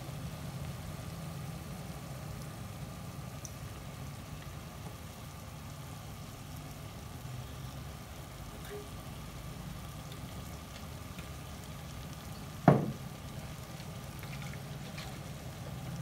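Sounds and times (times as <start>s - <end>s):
food frying in a wok: 0.0s - 16.0s
sharp knock: 12.7s - 13.0s.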